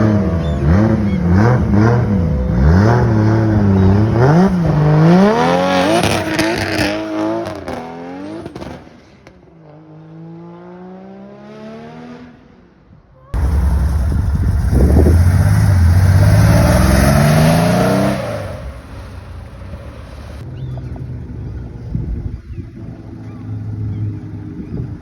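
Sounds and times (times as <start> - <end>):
car engine revving: 0.0 - 8.7, 13.4 - 20.4.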